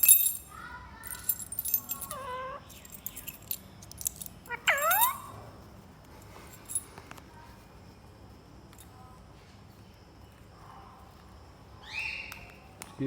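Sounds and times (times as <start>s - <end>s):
small clicks and rattles: 0.0s - 5.3s
parakeet calling: 2.1s - 2.7s, 4.5s - 5.4s.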